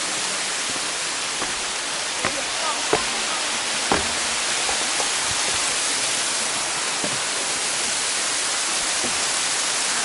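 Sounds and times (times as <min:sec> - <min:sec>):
waterfall rushing: 0:00.0 - 0:10.0
faint low knocks: 0:03.9 - 0:05.7.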